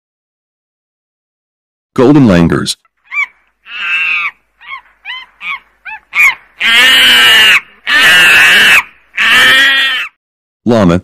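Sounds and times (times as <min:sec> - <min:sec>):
monkey chirping calls: 0:03.0 - 0:10.1
monkey harsh loud calls: 0:03.0 - 0:10.2.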